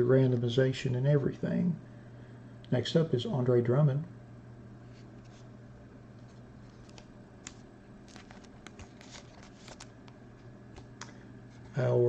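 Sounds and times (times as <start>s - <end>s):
low steady hum: 0.0s - 12.0s
trading cards clicking and rustling: 6.2s - 11.2s.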